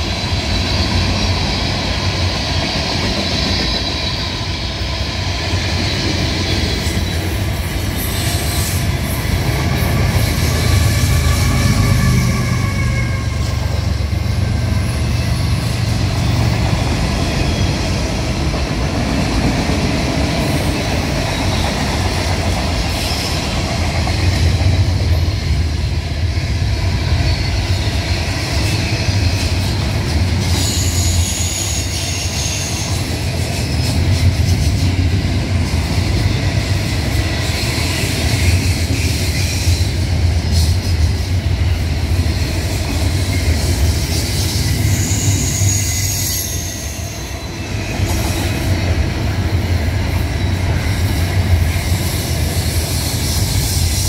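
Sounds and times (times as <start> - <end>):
freight cars rumbling on rails: 0.0 - 54.0
high-pitched wheel squeals: 10.3 - 15.8, 30.4 - 33.1, 44.2 - 47.8.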